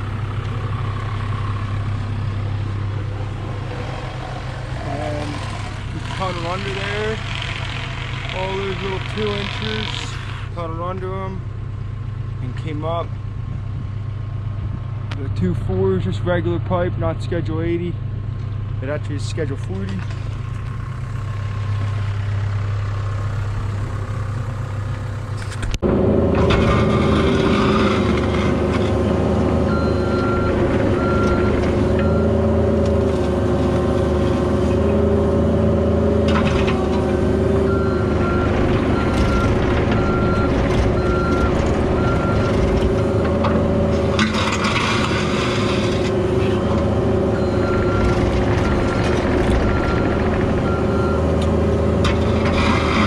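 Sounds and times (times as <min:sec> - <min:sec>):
excavator diesel engine running: 0:00.0 - 0:53.0
backup alarm beeping: 0:47.4 - 0:51.3.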